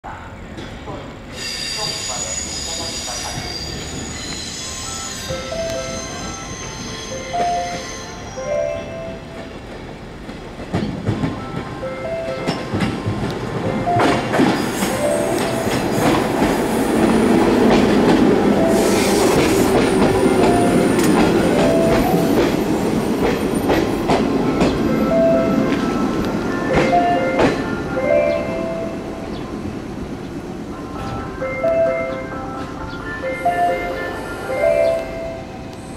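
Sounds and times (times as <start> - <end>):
train rumble: 0.1 - 35.9
train wheels clicking over rail joints: 9.4 - 11.7, 12.3 - 25.0.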